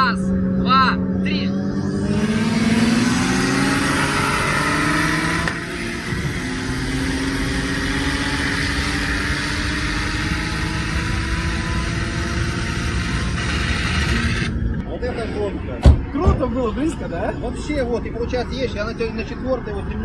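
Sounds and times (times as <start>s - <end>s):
car engine accelerating: 0.0s - 14.9s.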